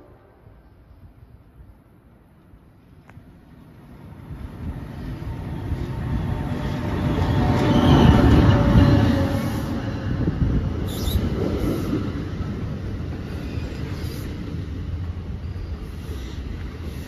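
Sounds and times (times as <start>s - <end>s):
train arriving with rumble: 0.0s - 17.0s.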